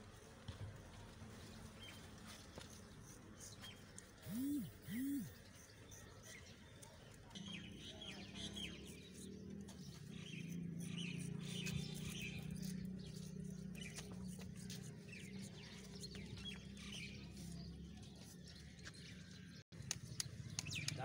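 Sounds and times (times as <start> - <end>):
small birds chirping: 1.4 - 21.0
steady low hum: 4.2 - 5.4.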